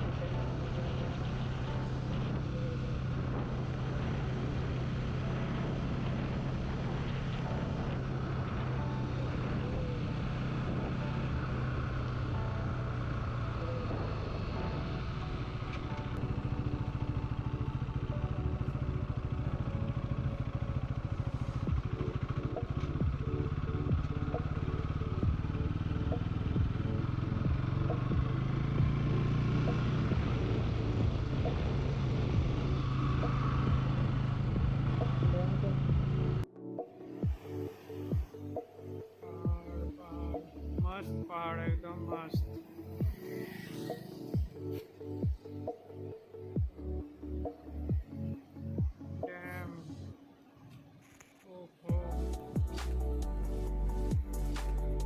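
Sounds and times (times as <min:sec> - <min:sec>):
motorcycle engine running: 0:00.0 - 0:36.5, 0:41.6 - 0:45.8, 0:51.9 - 0:55.0.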